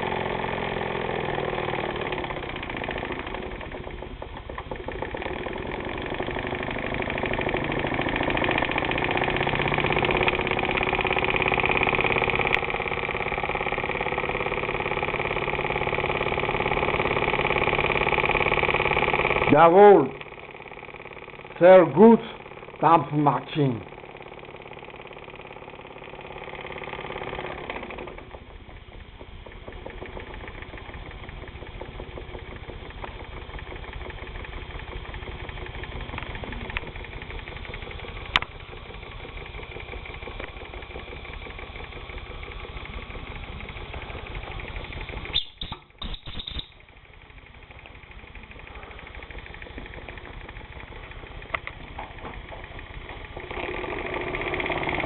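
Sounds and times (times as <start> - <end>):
toy steam engine running: 0.0 - 55.0
sharp click: 38.3 - 38.5, 45.3 - 46.9.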